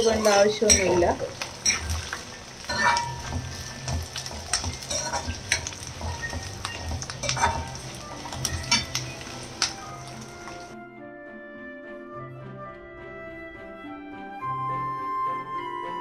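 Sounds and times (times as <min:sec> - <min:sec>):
metal spoon scraping pan: 0:00.0 - 0:10.7
garlic sizzling in oil: 0:00.0 - 0:10.8.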